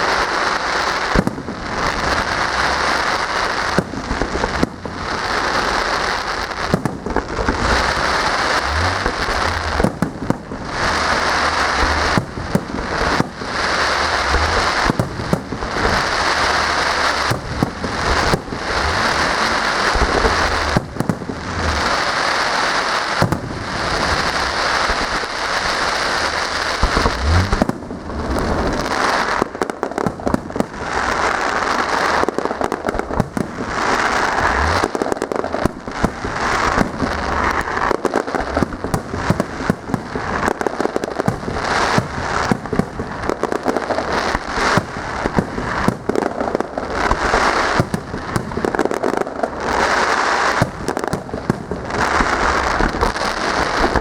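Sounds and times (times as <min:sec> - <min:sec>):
fireworks crackling and banging: 0:00.0 - 0:54.0
low fireworks thuds: 0:00.0 - 0:54.0.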